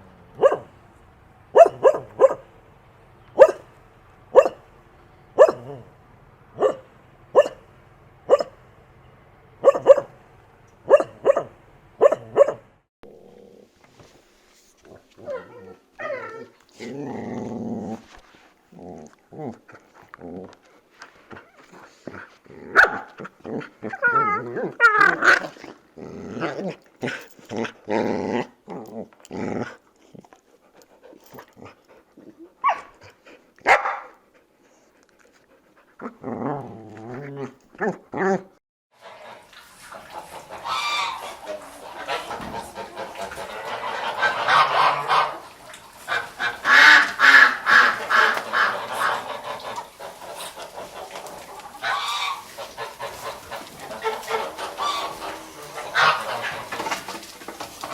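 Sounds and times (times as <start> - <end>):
dog barking and growling: 0.0 - 0.8, 1.5 - 2.6, 3.3 - 4.7, 5.4 - 8.6, 9.6 - 10.2, 10.8 - 13.7, 14.9 - 20.6, 21.6 - 30.3, 31.2 - 34.2, 36.0 - 38.6, 46.1 - 57.9
chorus of animal calls: 39.0 - 57.9.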